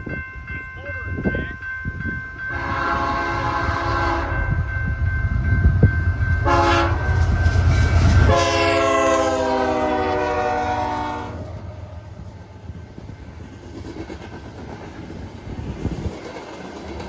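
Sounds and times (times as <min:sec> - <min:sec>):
train rumble: 0:00.0 - 0:17.0
locomotive air horn: 0:02.5 - 0:04.5, 0:06.4 - 0:07.2, 0:08.2 - 0:11.8.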